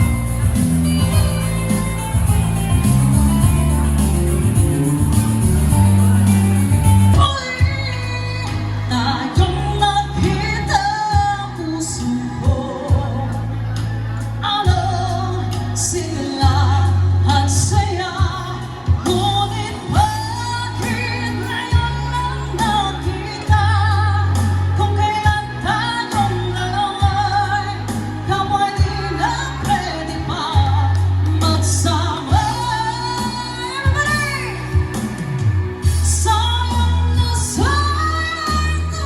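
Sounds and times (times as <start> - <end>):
sustained bass notes: 0.0 - 39.0
woman singing pop song: 4.5 - 39.0.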